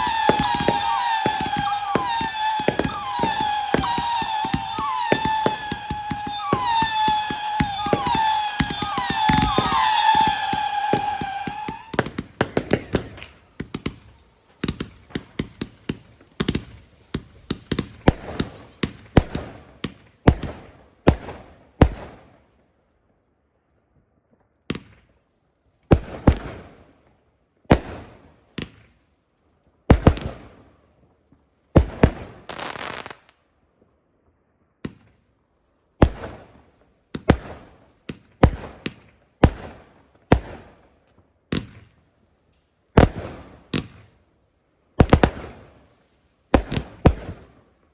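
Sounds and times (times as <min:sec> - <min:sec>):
fireworks bangs echoing: 0:00.0 - 0:22.1, 0:31.8 - 0:33.3, 0:43.0 - 0:44.0.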